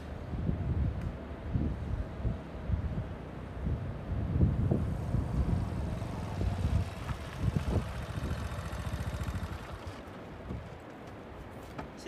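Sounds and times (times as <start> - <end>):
wind on microphone: 0.0 - 10.8
motorbike engine rumbling: 3.6 - 11.0.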